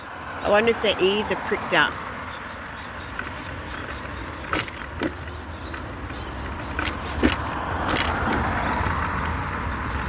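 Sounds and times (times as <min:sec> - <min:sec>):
scooter motor and road rumble: 0:00.0 - 0:10.0
sharp knocks and rattles: 0:03.0 - 0:09.4.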